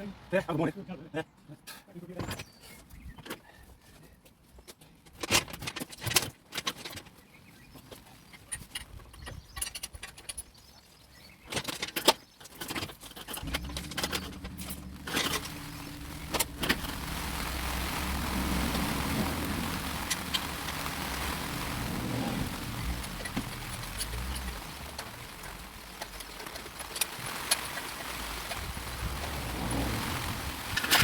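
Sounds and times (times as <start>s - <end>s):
low machine hum: 13.4s - 26.9s
hiss: 13.4s - 31.0s.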